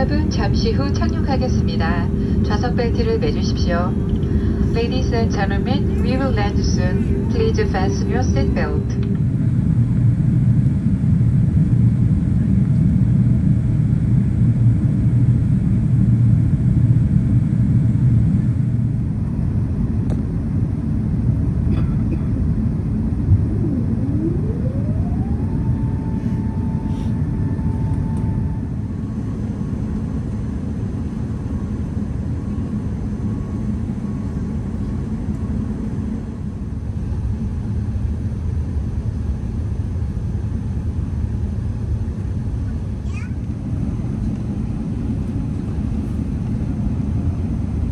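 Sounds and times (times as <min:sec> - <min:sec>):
rising whine: 0:00.0 - 0:11.6, 0:21.0 - 0:30.1
low rumble of engines and airflow: 0:00.0 - 0:47.9.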